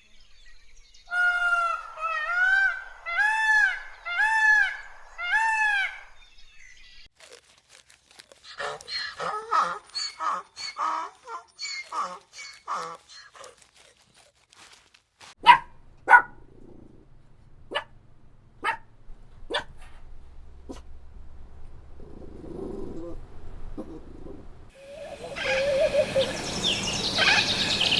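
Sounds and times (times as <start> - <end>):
dog barking: 15.4 - 17.0, 17.6 - 21.0.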